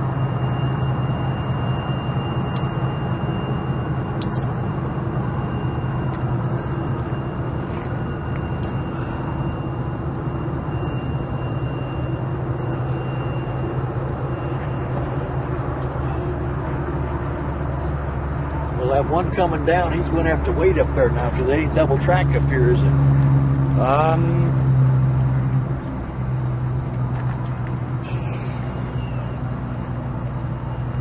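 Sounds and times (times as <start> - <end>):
thin high squeal: 28.0 - 29.4.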